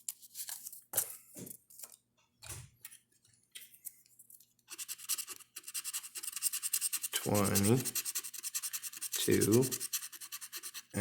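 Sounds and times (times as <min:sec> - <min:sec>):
lottery ticket being scratched: 0:04.7 - 0:11.0.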